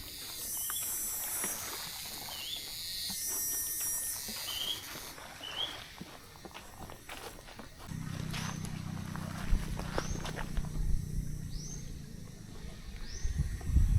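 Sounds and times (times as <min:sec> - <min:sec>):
insects buzzing: 0:00.0 - 0:13.9
birds chirping: 0:02.2 - 0:03.2, 0:04.2 - 0:06.6, 0:07.5 - 0:13.9.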